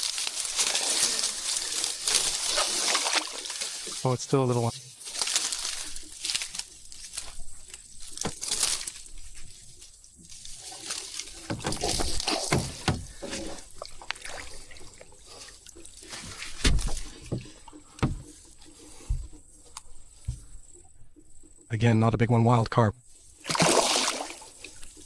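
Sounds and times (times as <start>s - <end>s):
water splashing and sloshing: 0.0s - 21.6s, 23.0s - 25.0s
knocks: 11.5s - 13.2s, 16.6s - 18.3s.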